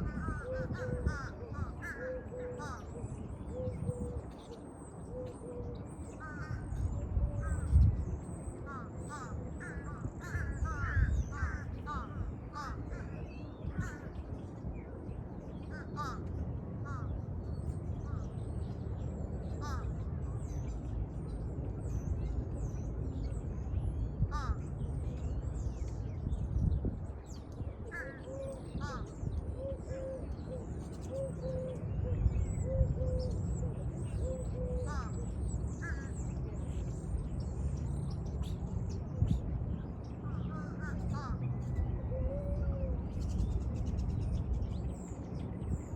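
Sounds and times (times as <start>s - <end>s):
crows cawing: 0.0s - 2.8s, 6.2s - 6.8s, 8.6s - 14.1s, 15.7s - 17.2s, 19.6s - 19.9s, 24.3s - 24.6s, 27.9s - 29.1s, 34.8s - 35.2s, 35.8s - 36.1s, 40.2s - 41.4s.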